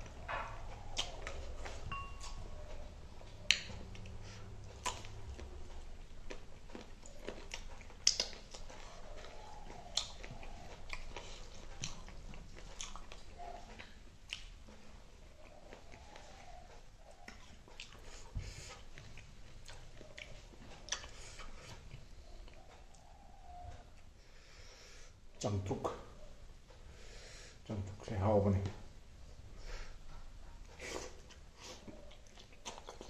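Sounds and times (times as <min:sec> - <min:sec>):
chewing and wet mouth smacks: 0:00.0 - 0:02.4, 0:03.3 - 0:23.1, 0:30.7 - 0:33.0.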